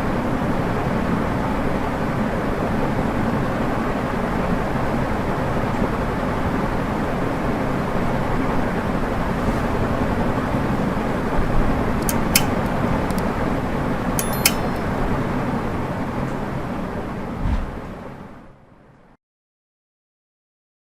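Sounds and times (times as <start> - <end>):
ceiling fan whirring: 0.0 - 19.2
sharp clicks: 12.0 - 13.3, 14.2 - 14.9.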